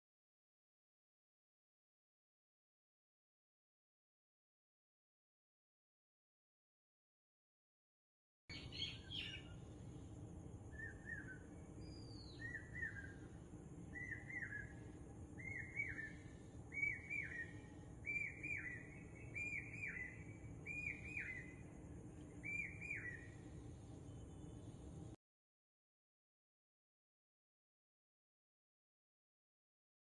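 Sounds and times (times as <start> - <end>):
bird chirping: 8.5 - 9.9, 10.7 - 24.9
low background hum: 8.5 - 25.2.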